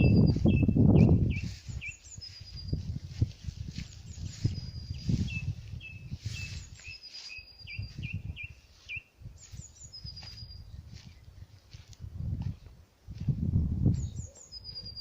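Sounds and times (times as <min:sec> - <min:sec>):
thin level bird whistles: 0:14.0 - 0:15.0.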